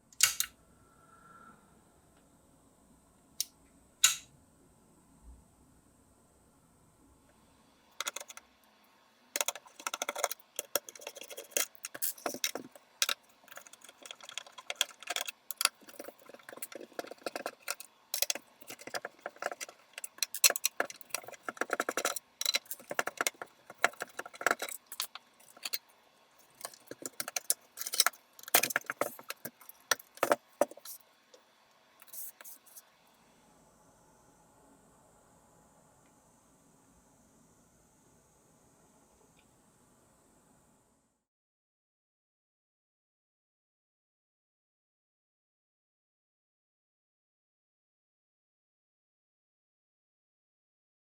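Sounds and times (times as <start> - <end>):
small metal parts clinking: 9.4 - 25.8, 26.4 - 31.0.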